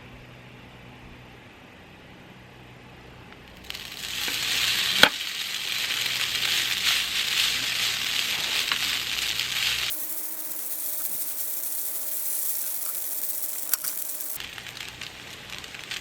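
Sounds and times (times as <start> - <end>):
food sizzling in a pan: 3.5 - 16.0.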